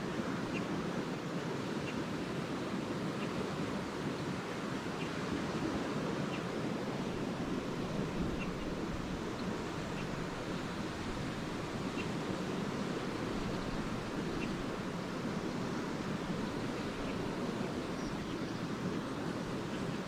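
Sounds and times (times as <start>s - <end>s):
lake waves washing onto shore: 2.2s - 20.0s
swallows chirping: 9.4s - 20.0s.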